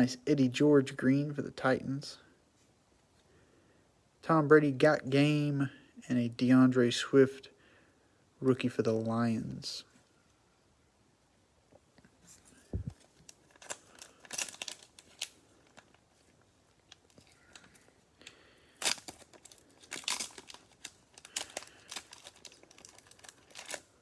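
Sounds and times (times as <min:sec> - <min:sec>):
soft low thump: 0:12.7 - 0:13.0
cellophane wrapper tearing and crinkling: 0:12.9 - 0:24.0.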